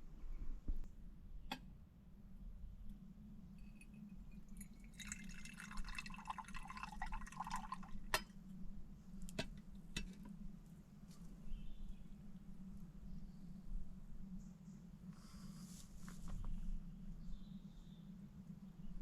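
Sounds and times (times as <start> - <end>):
liquid pouring and splashing: 4.5 - 8.1.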